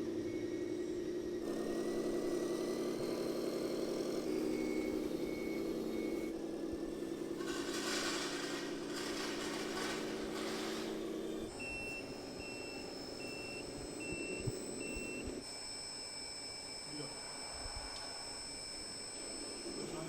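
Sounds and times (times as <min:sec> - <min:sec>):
toy truck engine hum: 0:00.0 - 0:15.2
reversing alarm beeps: 0:00.2 - 0:06.4, 0:07.3 - 0:20.0
steady high whine: 0:03.7 - 0:20.0.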